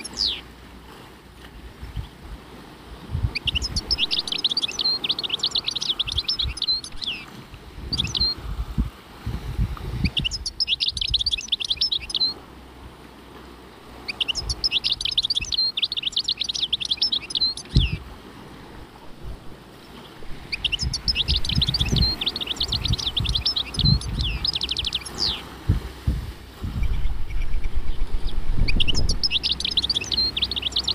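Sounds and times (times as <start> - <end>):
songbird singing: 0.0 - 0.8, 3.2 - 8.5, 10.0 - 30.9
low rumbling: 17.7 - 30.9.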